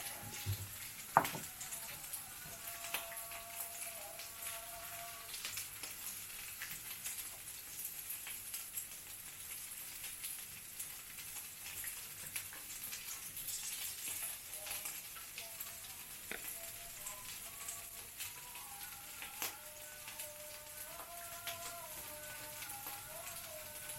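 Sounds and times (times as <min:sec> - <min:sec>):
food sizzling in a pan: 0:00.0 - 0:23.9
small crackles: 0:05.2 - 0:23.9.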